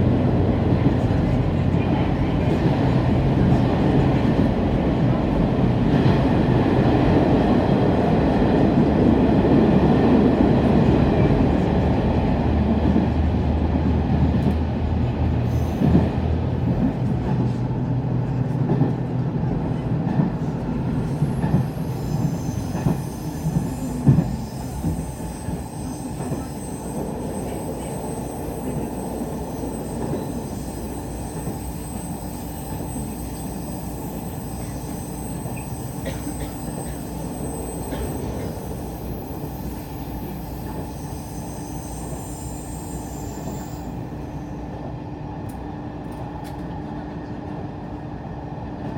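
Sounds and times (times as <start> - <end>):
rail running noise: 0.0 - 48.9
railcar engine hum: 0.0 - 48.9
faint high wheel squeal: 21.0 - 44.6.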